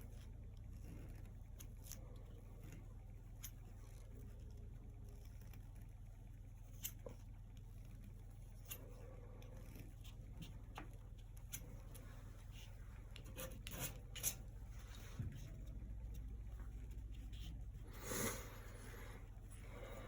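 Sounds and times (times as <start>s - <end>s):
steady low hum: 0.0s - 20.0s
painting tools scratching canvas: 6.6s - 19.0s.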